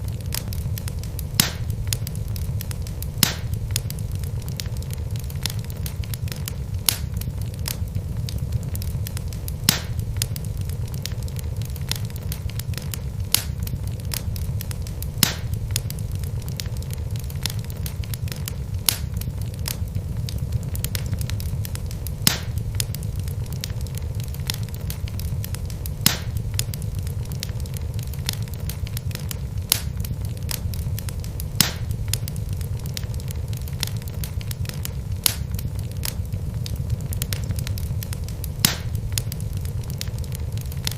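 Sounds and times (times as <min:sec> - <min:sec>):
logs popping: 0:00.0 - 0:40.9
rumble of flames: 0:00.0 - 0:40.9
wood fire crackling: 0:00.0 - 0:40.9.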